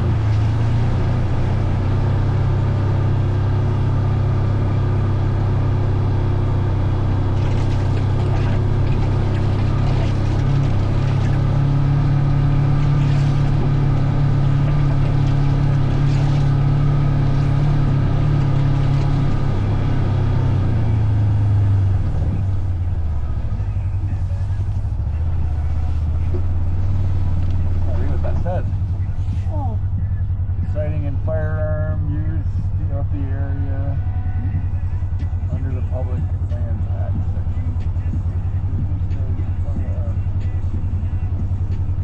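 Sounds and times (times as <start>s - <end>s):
vehicle engine running: 0.0s - 42.0s.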